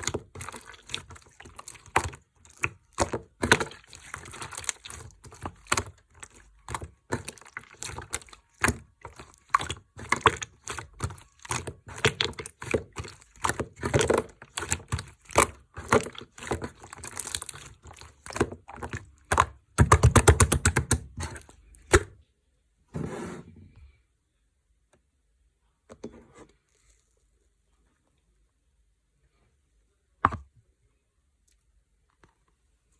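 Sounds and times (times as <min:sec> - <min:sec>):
slime squishing with clicking pops: 0:00.0 - 0:22.1.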